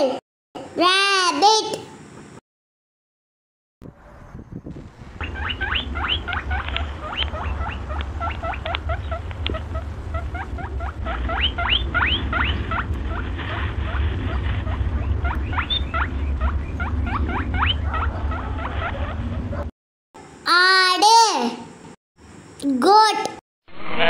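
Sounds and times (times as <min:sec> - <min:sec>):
low rumble: 0:03.8 - 0:19.7
high rising squeaks: 0:05.0 - 0:19.7.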